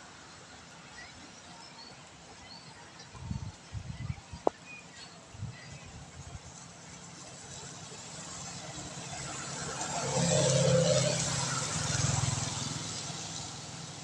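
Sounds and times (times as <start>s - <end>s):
tyres hissing on wet asphalt: 4.5s - 14.0s
vehicle engine hum: 5.5s - 14.0s.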